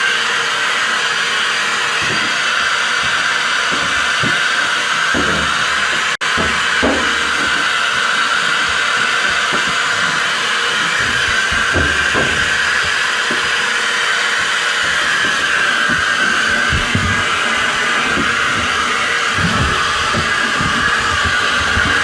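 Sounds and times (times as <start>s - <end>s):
stick vacuum whining: 0.0s - 22.0s.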